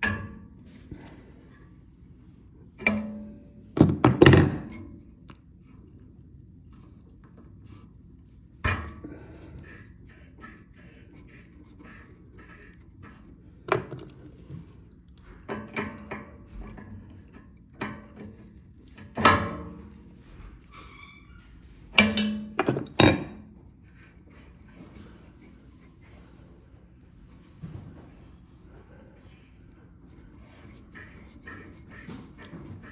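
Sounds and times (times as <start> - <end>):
tools knocking and clunking: 21.9 - 23.5.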